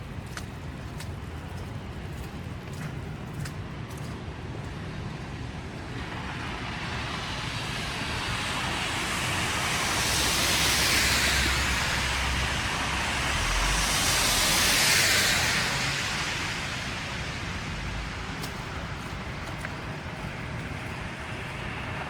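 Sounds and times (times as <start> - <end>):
tyre hiss from passing vehicles: 4.2 - 22.0
low engine rumble: 9.4 - 22.0.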